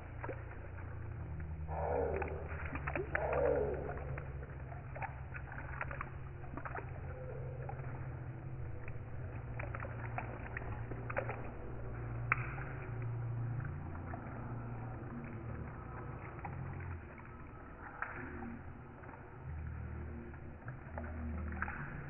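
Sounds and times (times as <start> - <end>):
low rumble: 0.0 - 22.0
rain falling steadily: 0.0 - 22.0
sharp drip taps: 0.0 - 22.0.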